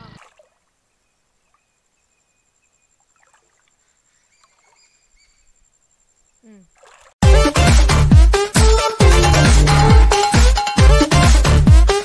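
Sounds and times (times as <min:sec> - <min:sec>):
faint bird chirps: 0:00.4 - 0:06.8.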